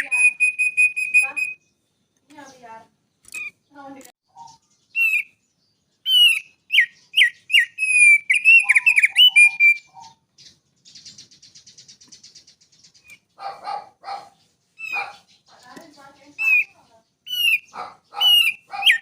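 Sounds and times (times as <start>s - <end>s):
bird singing whistled phrases: 0.0s - 1.8s, 4.3s - 5.4s, 6.0s - 12.4s, 16.2s - 19.0s
fast buzzy bird trill: 6.1s - 15.4s, 16.0s - 19.0s.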